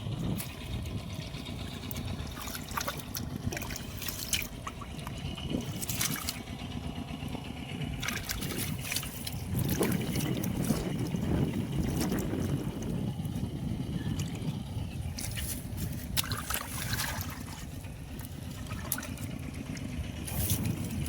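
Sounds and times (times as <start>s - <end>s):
water splashing and trickling: 0.0s - 21.0s
hands splashing water: 1.8s - 6.5s, 8.0s - 12.6s, 15.1s - 21.0s.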